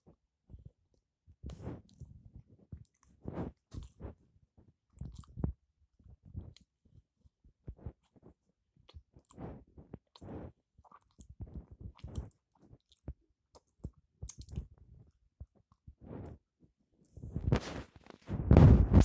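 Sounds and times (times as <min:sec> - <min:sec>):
chewing sounds: 0:04.9 - 0:05.6, 0:08.0 - 0:16.4.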